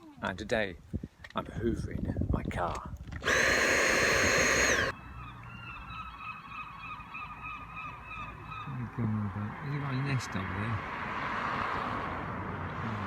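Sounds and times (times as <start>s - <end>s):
faint steady whine: 3.2s - 4.9s
vacuum cleaner running: 3.2s - 4.9s.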